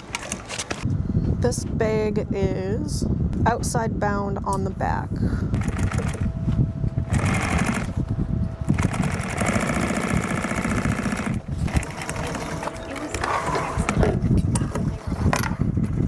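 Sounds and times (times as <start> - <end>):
industrial sewing machine stitching: 5.6 - 6.3, 7.1 - 8.0, 8.7 - 14.0.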